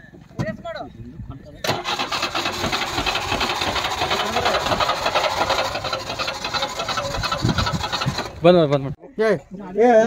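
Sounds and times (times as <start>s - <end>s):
car engine running rattly: 1.7s - 8.7s.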